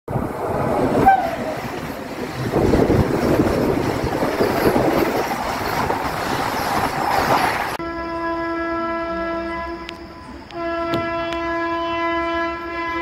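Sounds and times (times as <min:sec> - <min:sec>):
train rumble and rattle: 0:00.1 - 0:07.8
train passing alongside: 0:00.1 - 0:13.0
high squeal: 0:04.2 - 0:07.8.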